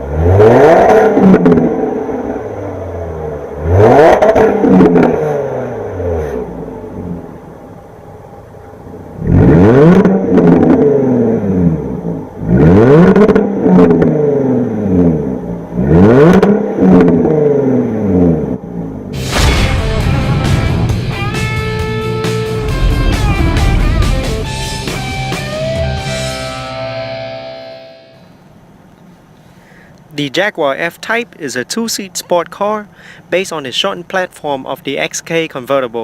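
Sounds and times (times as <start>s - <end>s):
car engine revving: 0.0s - 30.1s.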